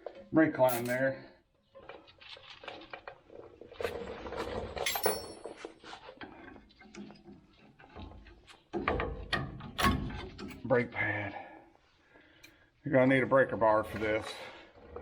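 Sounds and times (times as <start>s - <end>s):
metal tools clinking: 0.7s - 1.0s, 4.8s - 5.8s
metallic ring: 4.9s - 5.6s.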